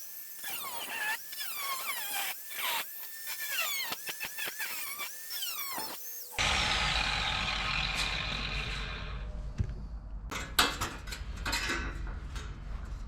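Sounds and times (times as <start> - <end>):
grinder cutting sheet steel: 0.0 - 9.2.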